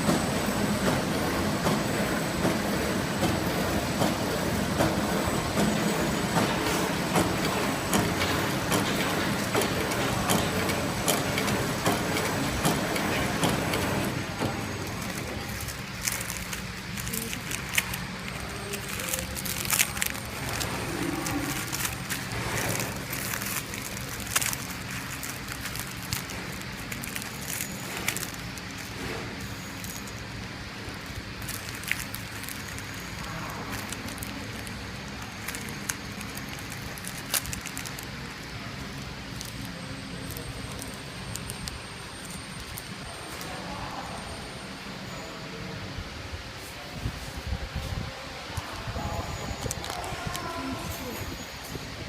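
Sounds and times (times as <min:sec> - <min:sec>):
packing machine humming: 0:00.0 - 0:46.0, 0:46.6 - 0:52.0
machine clicks and ticks: 0:05.6 - 0:30.2.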